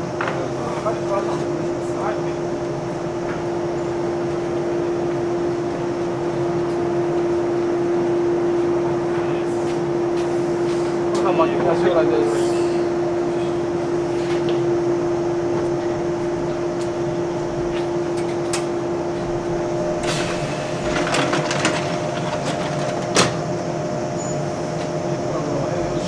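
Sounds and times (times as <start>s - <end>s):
electric train humming: 0.0s - 26.0s
gangway doors clicking and clattering: 17.5s - 23.6s.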